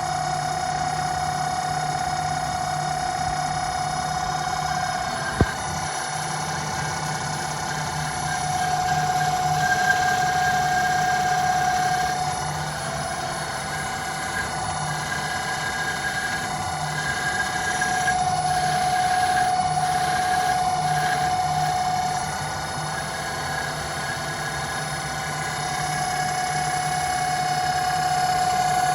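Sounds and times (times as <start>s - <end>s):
lathe motors whining: 0.0s - 28.9s
pulsing hum: 0.0s - 28.9s.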